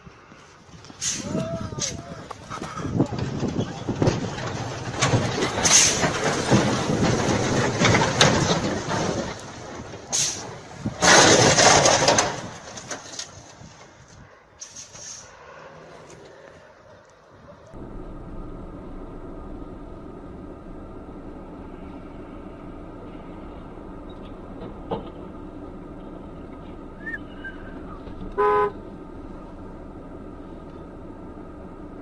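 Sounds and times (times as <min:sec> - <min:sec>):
car driving road noise: 0:00.0 - 0:32.0
car horn toot: 0:28.3 - 0:28.8.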